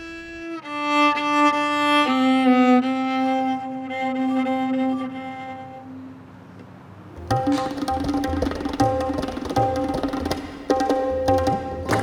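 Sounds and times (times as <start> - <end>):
tabla drumming: 7.2 - 12.0.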